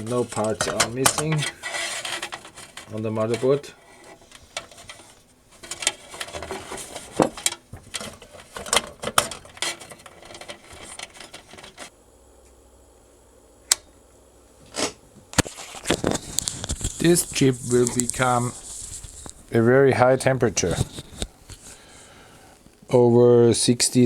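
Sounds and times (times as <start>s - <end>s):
circuit board and chassis clatter: 0.0s - 11.9s, 15.4s - 19.6s
faint steady hum: 0.0s - 24.0s.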